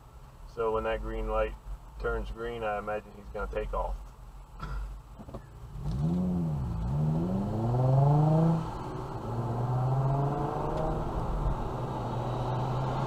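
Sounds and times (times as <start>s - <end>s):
vehicle engine pulling away: 5.7s - 13.0s.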